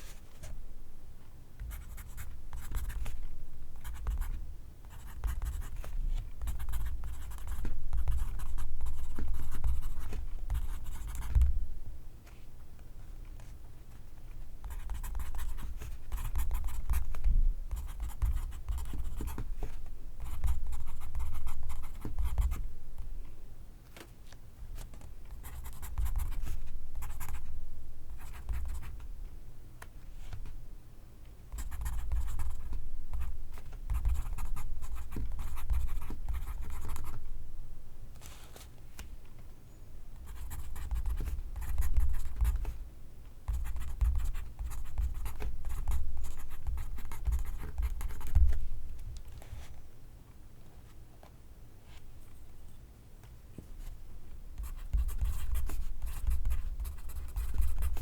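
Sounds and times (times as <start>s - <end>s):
pencil scratching on paper: 14.7s - 17.1s, 54.6s - 58.0s.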